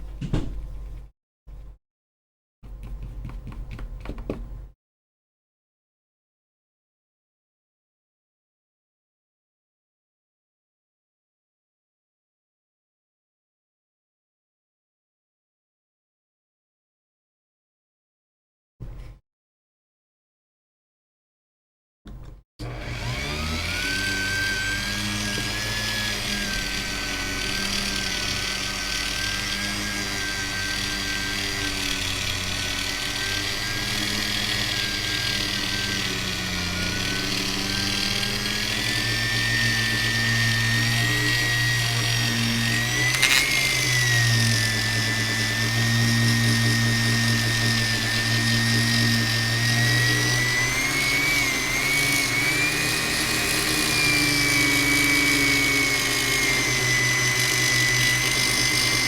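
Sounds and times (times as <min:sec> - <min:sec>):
power tool motor whine: 0:22.6 - 0:59.0.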